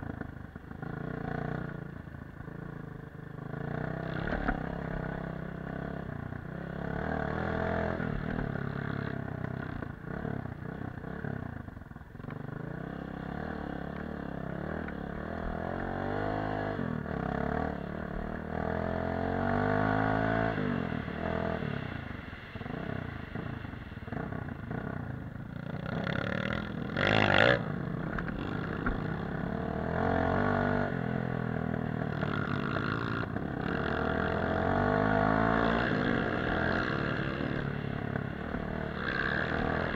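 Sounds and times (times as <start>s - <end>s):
dirt bike engine revving: 12.6s - 21.5s, 25.6s - 31.4s, 32.1s - 39.9s.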